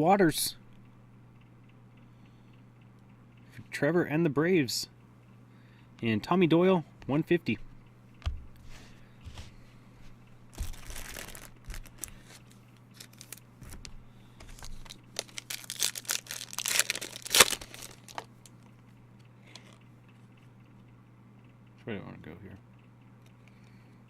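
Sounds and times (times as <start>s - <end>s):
card packaging tearing and crinkling: 10.5s - 18.4s.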